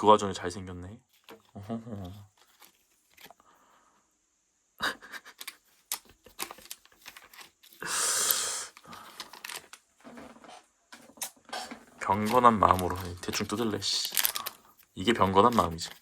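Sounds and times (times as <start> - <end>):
wrapper crinkling: 1.1 - 3.4, 5.4 - 7.9, 8.8 - 16.0
wrapper ripping open: 9.0 - 9.8, 11.2 - 16.0.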